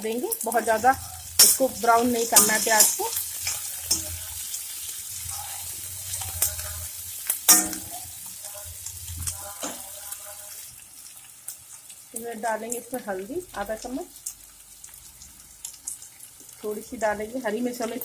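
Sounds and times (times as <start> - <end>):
onions sizzling in hot oil: 0.0 - 18.0
spatula stirring and scraping: 0.7 - 10.8.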